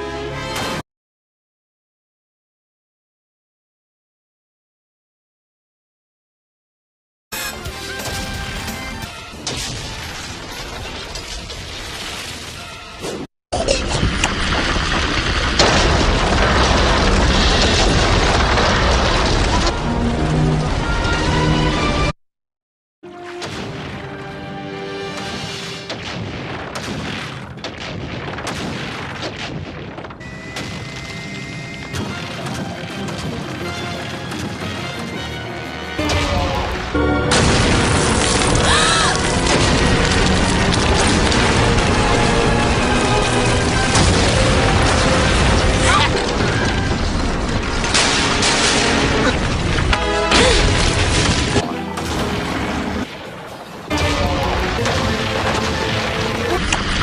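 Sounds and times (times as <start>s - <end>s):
background music: 7.4s - 9.6s, 32.0s - 37.4s
rock cracking and crashing: 9.5s - 12.9s, 13.9s - 21.8s, 36.5s - 57.0s.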